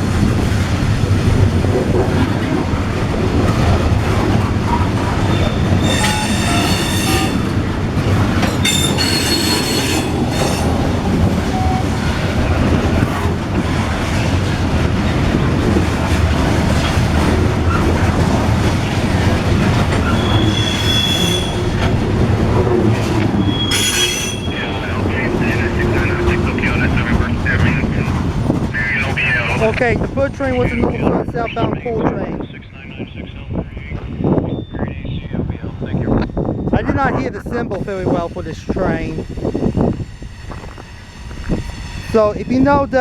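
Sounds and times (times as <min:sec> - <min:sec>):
train wheels rumbling on rails: 0:00.0 - 0:43.0
high-pitched wheel squeal: 0:05.3 - 0:07.5, 0:08.6 - 0:10.7, 0:20.0 - 0:21.8, 0:23.4 - 0:24.7.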